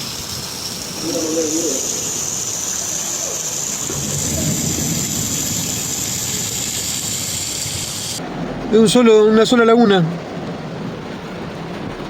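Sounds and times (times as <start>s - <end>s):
heavy rain hissing: 0.0s - 10.2s
rushing floodwater: 3.8s - 12.0s
low rumble: 3.9s - 9.0s.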